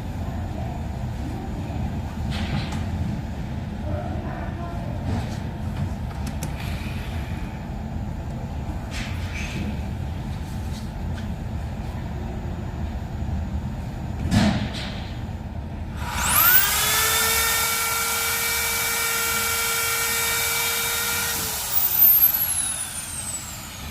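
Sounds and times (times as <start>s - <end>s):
low factory rumble: 0.0s - 23.9s
thump: 14.2s - 15.0s
power tool motor whine: 16.0s - 23.9s.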